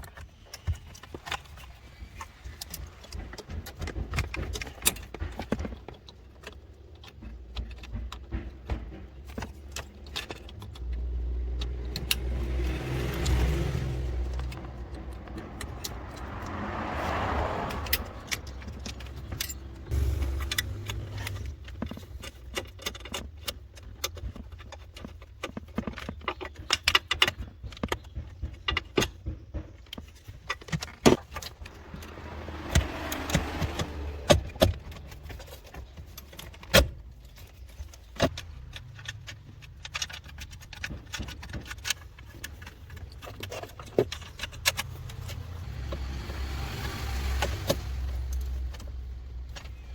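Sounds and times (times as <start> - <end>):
low rumble: 17.8 - 21.7
metal tools clinking: 17.8 - 23.5.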